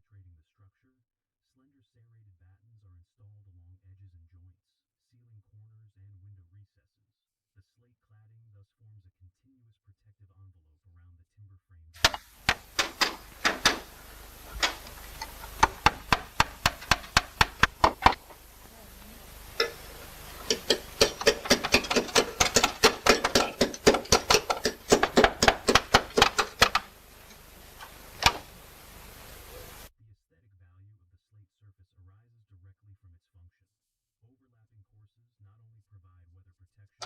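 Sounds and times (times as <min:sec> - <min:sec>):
hammer tapping slate: 0:12.0 - 0:29.9.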